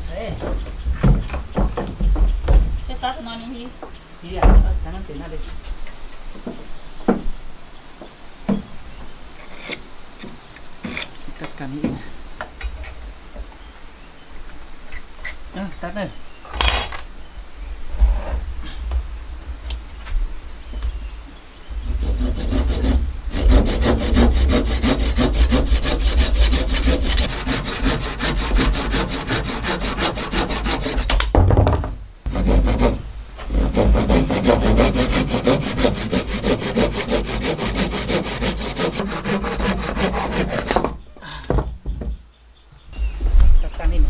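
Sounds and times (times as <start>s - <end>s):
saw cutting through wood: 21.7s - 31.3s, 32.3s - 41.0s.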